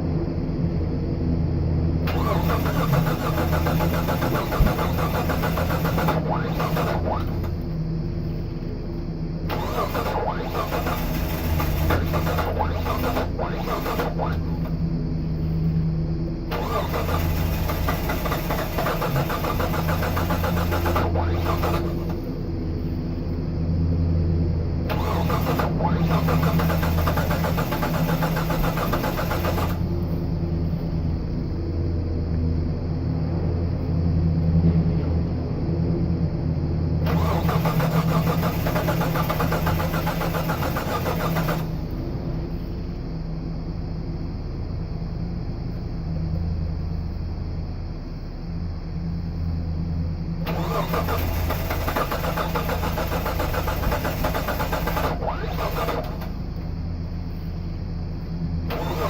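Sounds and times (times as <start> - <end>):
engine starter cranking: 2.0 - 7.8, 9.5 - 14.8, 16.5 - 22.5, 24.9 - 30.2, 37.0 - 42.1, 50.5 - 56.7, 58.6 - 59.0.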